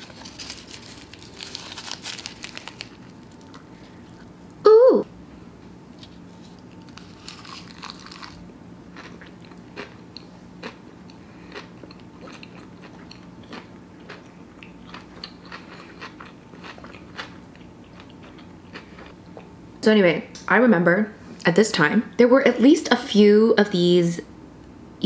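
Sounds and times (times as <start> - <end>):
chewing crisp food: 0.0 - 4.4, 6.0 - 19.5.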